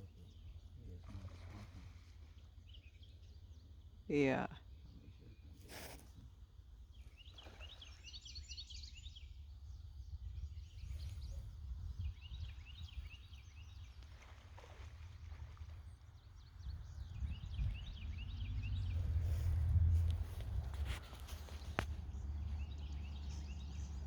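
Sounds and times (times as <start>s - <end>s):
bird chirping: 6.9s - 14.0s, 16.1s - 19.4s, 20.9s - 24.0s
low rumble: 16.8s - 24.0s.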